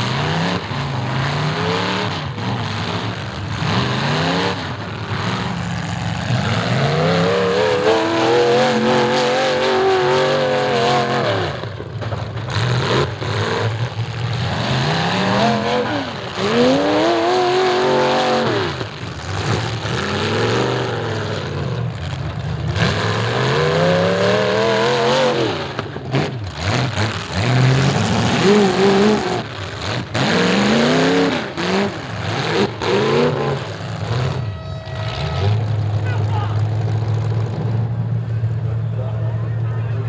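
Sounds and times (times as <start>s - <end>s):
car engines revving hard: 0.0s - 40.0s.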